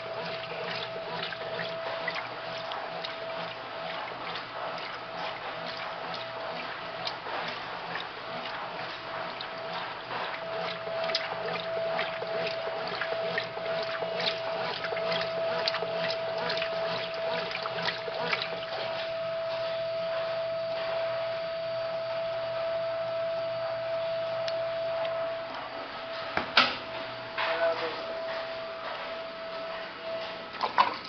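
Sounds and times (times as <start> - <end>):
water sloshing in tub: 0.0 - 21.1
washing machine humming: 0.0 - 31.0.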